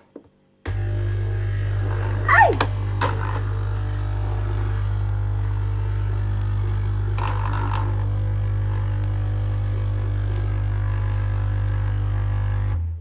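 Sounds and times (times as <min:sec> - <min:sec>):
coffee machine pump humming: 0:00.7 - 0:12.6
brief rasping noise: 0:02.2 - 0:02.7.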